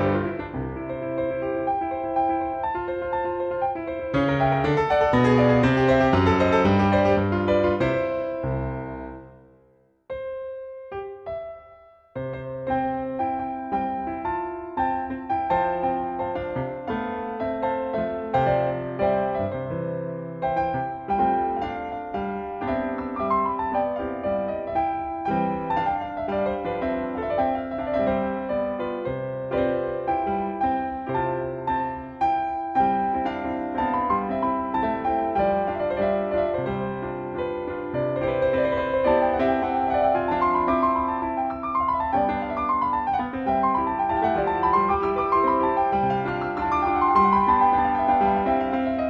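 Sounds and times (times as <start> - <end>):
piano music: 0.0 - 49.0.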